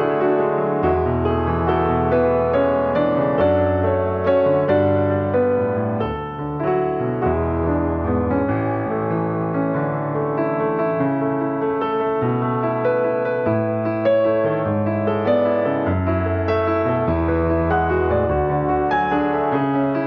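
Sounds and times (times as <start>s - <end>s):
slow gentle piano music: 0.0s - 20.0s.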